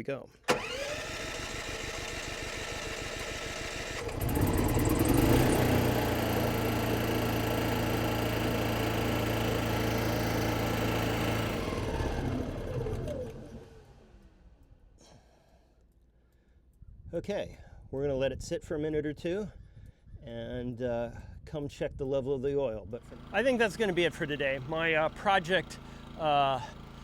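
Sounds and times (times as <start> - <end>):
generator engine cranking: 0.4 - 14.7, 23.0 - 27.0
generator engine running: 0.4 - 14.7, 23.0 - 27.0.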